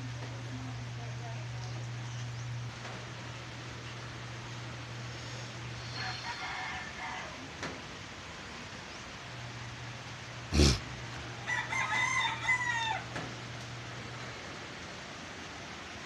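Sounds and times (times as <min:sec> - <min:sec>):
rooster crowing: 0:05.8 - 0:07.5, 0:11.4 - 0:13.3.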